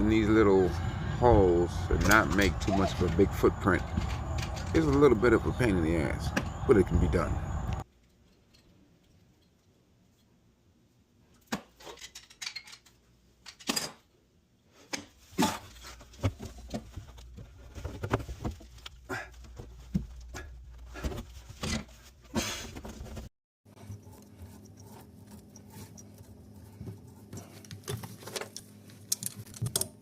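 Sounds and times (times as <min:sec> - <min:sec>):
metallic clinks and rattles of tools: 0:02.0 - 0:05.2, 0:07.9 - 0:09.8, 0:11.8 - 0:14.0.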